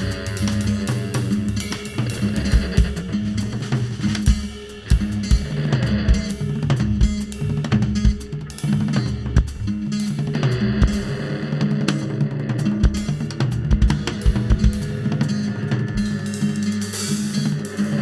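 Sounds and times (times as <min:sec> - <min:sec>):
upright bass line: 0:00.0 - 0:11.2
drum kit beat: 0:00.0 - 0:18.0
guitars: 0:00.0 - 0:18.0.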